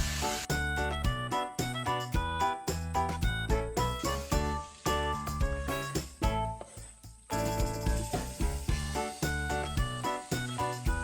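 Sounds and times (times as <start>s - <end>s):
light bouncy background music: 0.0s - 11.0s.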